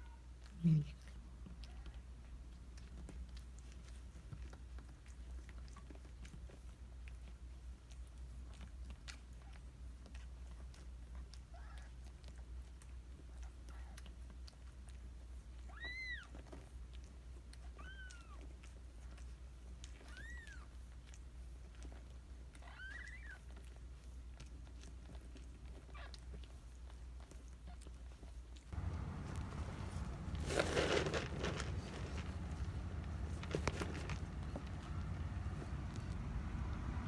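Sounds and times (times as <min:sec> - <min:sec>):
steady low hum: 0:28.7 - 0:37.0.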